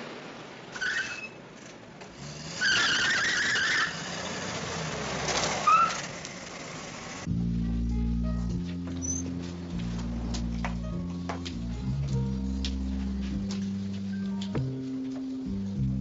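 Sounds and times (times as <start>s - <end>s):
tyres squealing: 0.6s - 7.3s
music: 7.3s - 16.0s.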